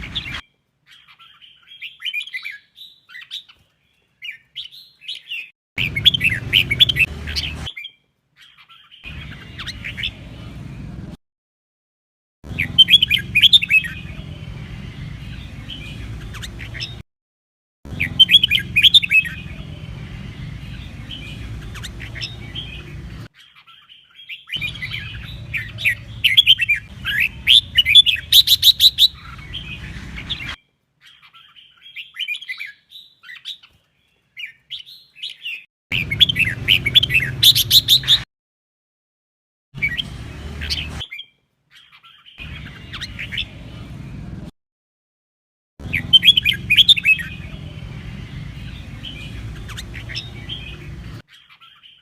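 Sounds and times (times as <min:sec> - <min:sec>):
bird singing with trills: 0:00.0 - 0:10.6, 0:12.5 - 0:17.0, 0:17.9 - 0:38.3, 0:39.8 - 0:44.0, 0:45.8 - 0:52.0.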